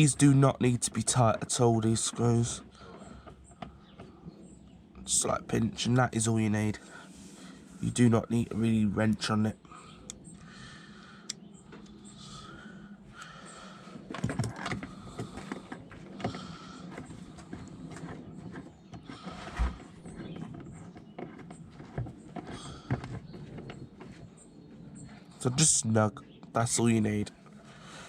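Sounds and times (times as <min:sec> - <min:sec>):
plastic squeaks: 0:14.1 - 0:24.3.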